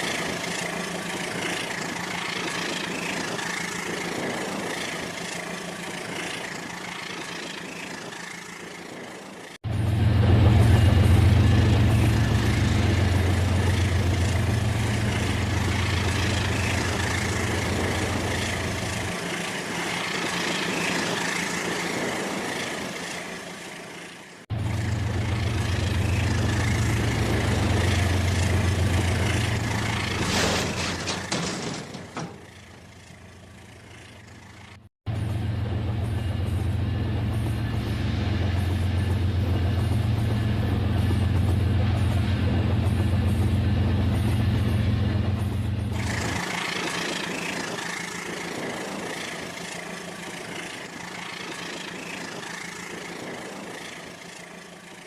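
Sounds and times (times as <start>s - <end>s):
wheels on rails: 0.0s - 55.0s
model train motor hum: 46.0s - 55.0s.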